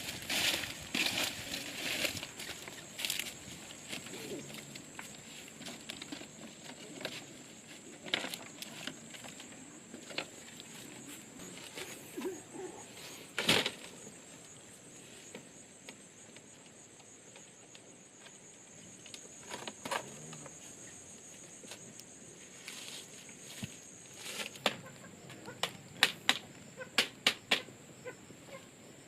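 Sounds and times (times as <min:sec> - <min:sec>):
rustling: 0:00.0 - 0:14.6, 0:22.5 - 0:24.8
high insect drone: 0:00.0 - 0:29.0.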